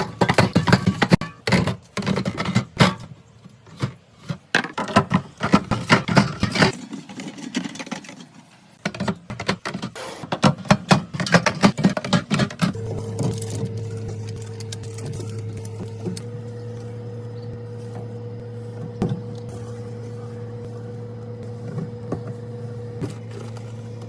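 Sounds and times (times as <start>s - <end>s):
groceries being handled: 10.6s - 24.0s
steady low hum: 11.8s - 24.0s.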